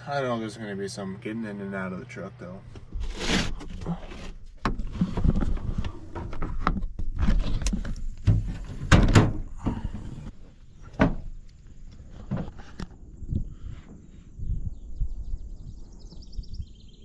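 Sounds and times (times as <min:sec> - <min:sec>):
vehicle door clicks and thumps: 0:06.6 - 0:10.0.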